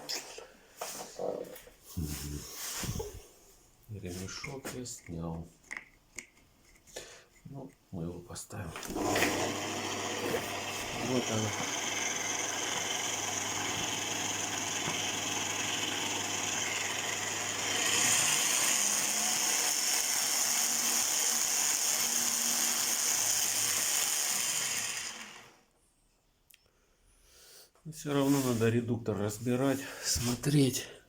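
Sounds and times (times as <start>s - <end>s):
kitchen mixer motor and gearbox running: 8.8s - 25.6s.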